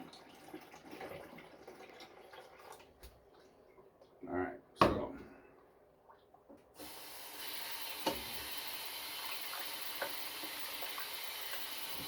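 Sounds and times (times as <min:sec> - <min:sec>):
tap running into sink: 0:07.8 - 0:12.0.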